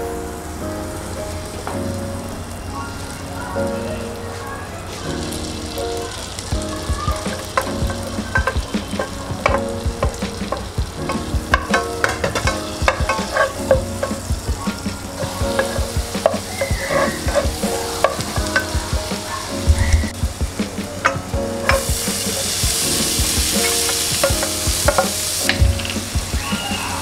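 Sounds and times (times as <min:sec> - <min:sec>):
vegetables sizzling in butter: 0:02.8 - 0:27.0
wooden spatula scraping pan: 0:07.3 - 0:18.8.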